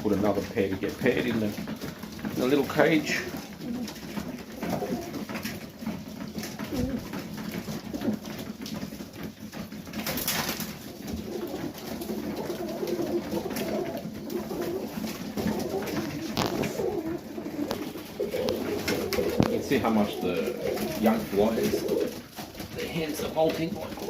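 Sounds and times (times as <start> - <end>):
pigeons cooing: 0.0 - 24.0
wing flurries: 12.5 - 22.1.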